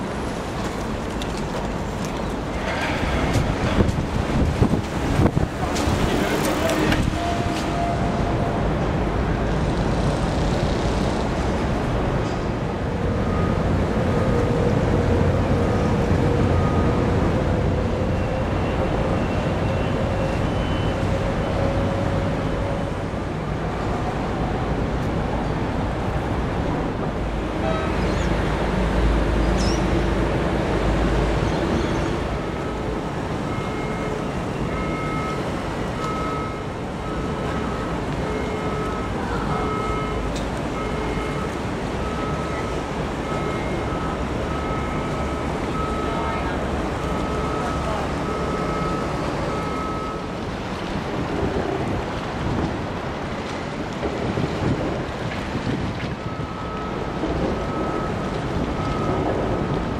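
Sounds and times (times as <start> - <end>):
low ship engine hum: 0.0 - 59.9
outdoor background noise: 0.0 - 59.9
wind noise on microphone: 1.6 - 19.6, 49.4 - 59.9.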